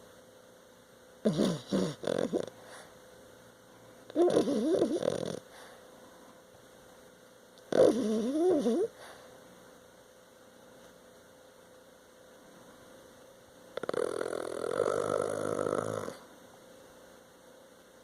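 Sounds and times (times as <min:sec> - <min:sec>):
dog snoring: 0:01.2 - 0:02.9, 0:04.1 - 0:05.8, 0:07.7 - 0:09.2, 0:13.8 - 0:16.3.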